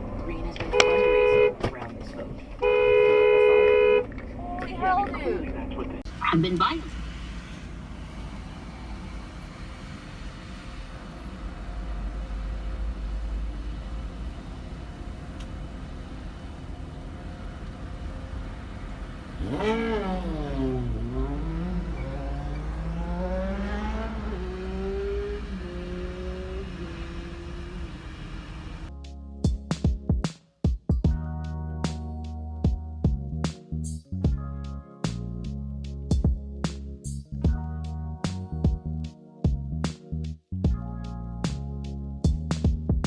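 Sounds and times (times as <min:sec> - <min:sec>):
car driving rumble: 0:00.0 - 0:28.9
car engine revving: 0:00.0 - 0:28.9.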